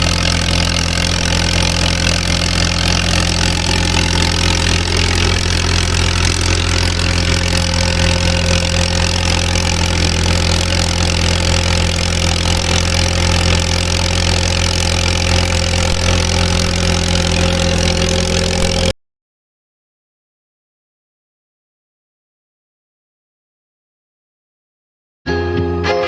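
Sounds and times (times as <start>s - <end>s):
tractor engine idling: 0.0s - 18.9s.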